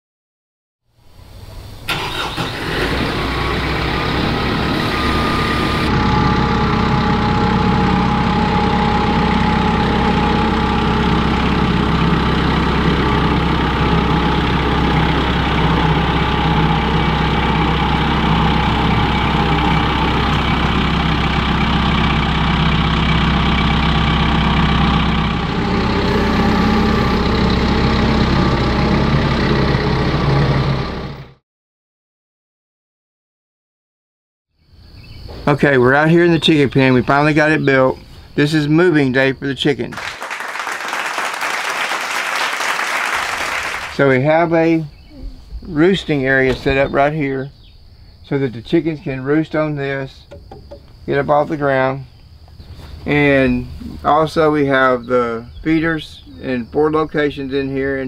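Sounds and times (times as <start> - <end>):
engine running steadily: 1.7 - 31.4.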